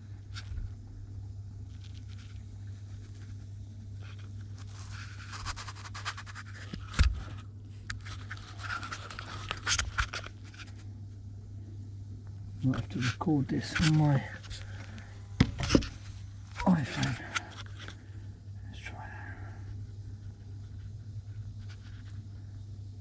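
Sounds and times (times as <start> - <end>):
low hum: 0.0 - 23.0
handling scrapes and rustles: 1.7 - 7.4, 8.0 - 10.8, 12.8 - 17.9.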